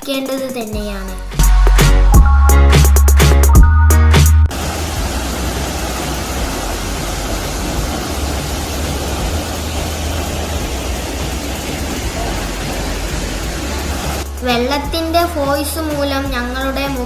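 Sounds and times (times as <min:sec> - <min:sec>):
waterfall crashing onto rock: 0:04.5 - 0:14.3.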